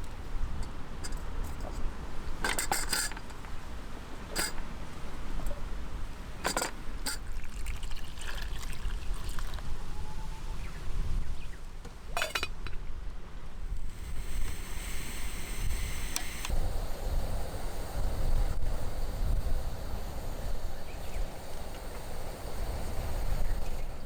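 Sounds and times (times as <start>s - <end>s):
liquid pouring: 7.2s - 9.6s
cookware clinking: 12.2s - 12.8s
wind on microphone: 13.7s - 24.0s.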